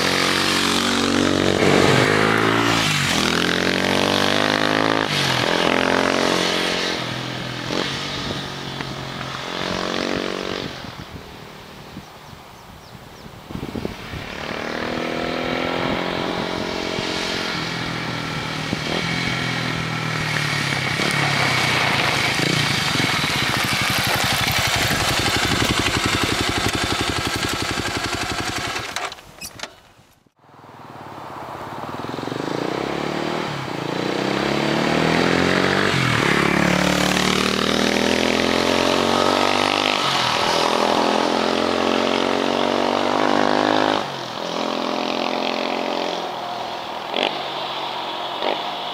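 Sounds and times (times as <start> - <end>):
motorcycle accelerating and upshifting: 0.0 - 12.0, 13.5 - 29.2, 30.5 - 48.9.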